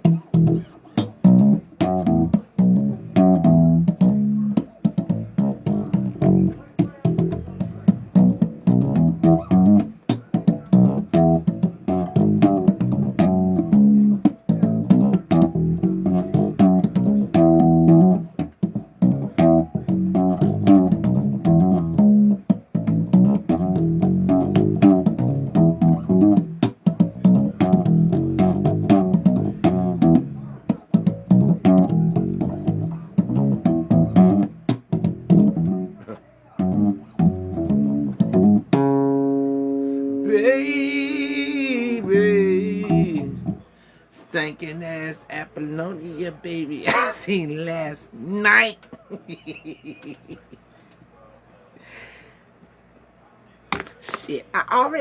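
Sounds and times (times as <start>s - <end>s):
bass guitar riffs: 0.0s - 43.8s.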